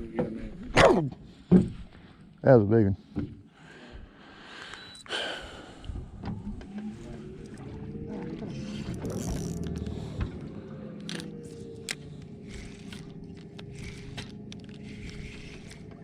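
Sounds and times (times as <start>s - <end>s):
boat motor running: 5.5s - 16.0s.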